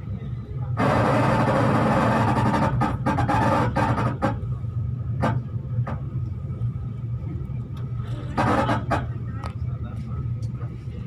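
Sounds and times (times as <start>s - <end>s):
train running rumble: 0.0s - 11.0s
wheels clacking over rail joints: 8.0s - 9.2s.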